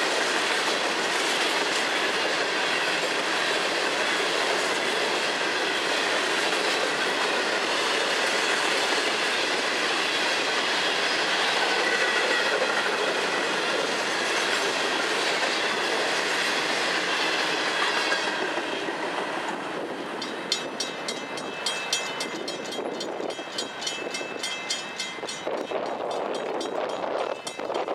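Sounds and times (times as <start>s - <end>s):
train wheels clattering on rails: 0.0s - 27.9s
crossing warning bell ringing: 20.1s - 27.9s.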